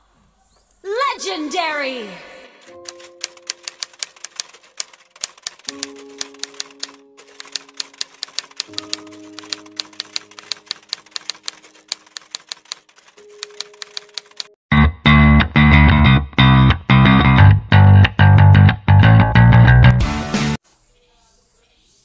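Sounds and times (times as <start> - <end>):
soft background music: 2.2 - 14.5
typewriter key clicks: 2.8 - 14.5.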